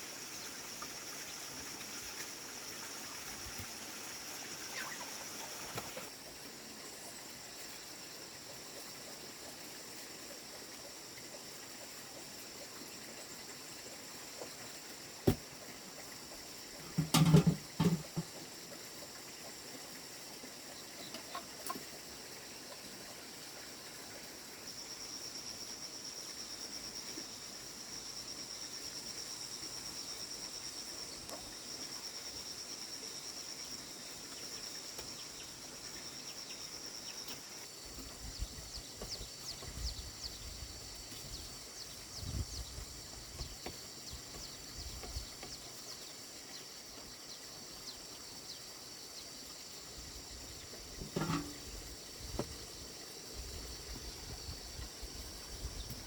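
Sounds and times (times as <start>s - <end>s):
chickens clucking: 4.7s - 6.1s, 21.0s - 22.0s.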